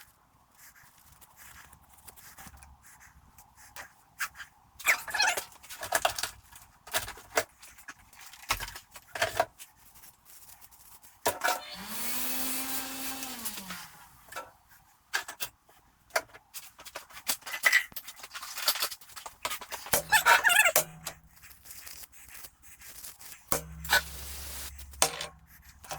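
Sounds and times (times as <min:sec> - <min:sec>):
steady hum: 0:23.5 - 0:25.9
hiss: 0:23.9 - 0:24.7.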